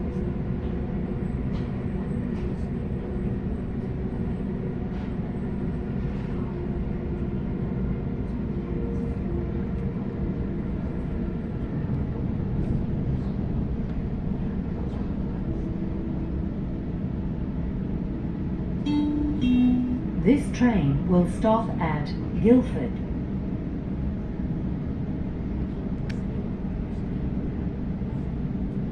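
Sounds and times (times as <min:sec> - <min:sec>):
train wheels rumbling on track: 0:00.0 - 0:28.9
faint humming tones: 0:18.8 - 0:23.2.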